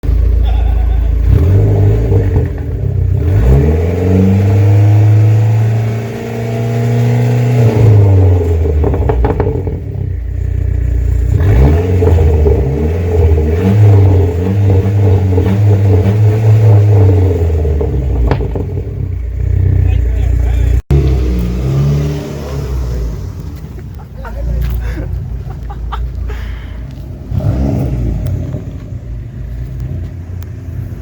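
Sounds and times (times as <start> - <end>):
car engine revving hard: 1.2 - 10.0, 11.1 - 19.0, 19.6 - 23.5, 27.3 - 28.8.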